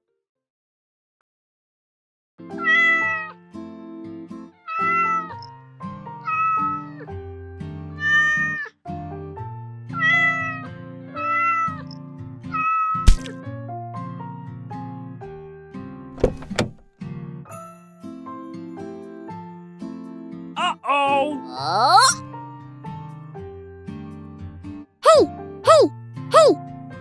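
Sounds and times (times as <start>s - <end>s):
kitten meowing: 2.6s - 3.3s, 4.7s - 5.4s, 6.2s - 6.8s, 8.0s - 8.7s, 10.0s - 10.6s, 12.6s - 13.3s, 20.6s - 22.2s
sharp click: 13.1s - 13.3s
background music: 19.9s - 27.0s.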